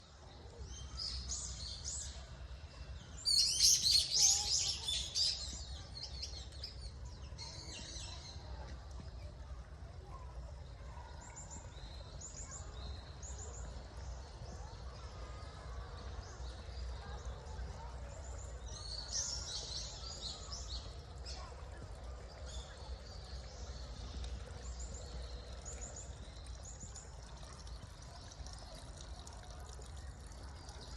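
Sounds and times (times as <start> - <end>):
small birds chirping: 0.7 - 9.4.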